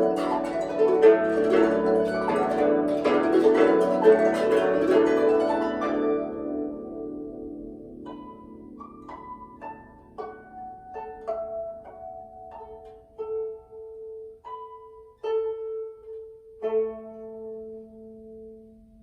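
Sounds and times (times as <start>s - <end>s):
plucked zither melody: 0.0s - 19.0s.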